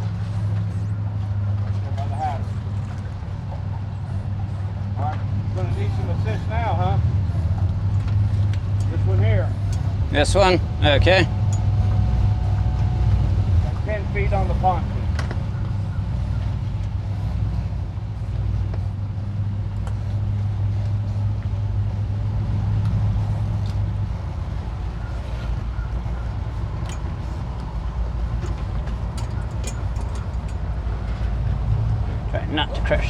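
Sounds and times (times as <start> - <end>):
outboard engines low drone: 0.0 - 33.0.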